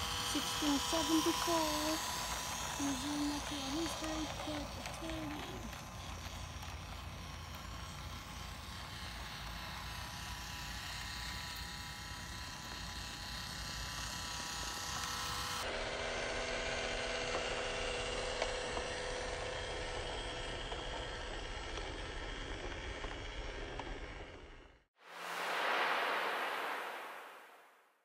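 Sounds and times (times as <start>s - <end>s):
train low rumble: 0.0s - 6.9s
traction motor whine: 0.0s - 26.8s.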